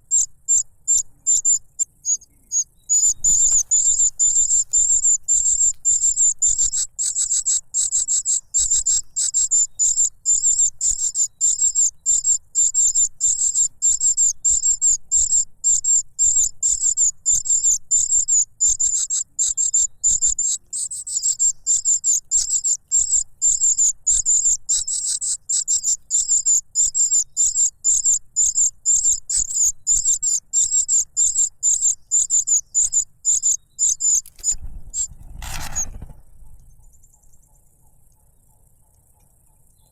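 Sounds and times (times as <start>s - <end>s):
bird chick begging calls: 0.1s - 36.1s.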